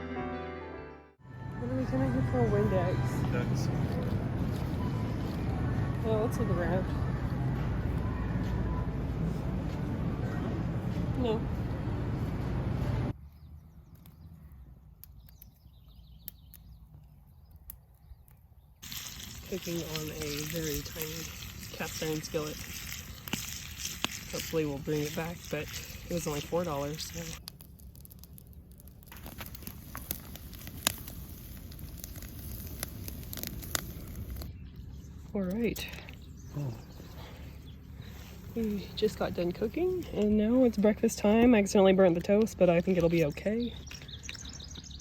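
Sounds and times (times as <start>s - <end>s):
steady low hum: 1.4s - 13.2s
food sizzling in a skillet: 18.8s - 27.4s
small bird chirping: 43.0s - 45.0s.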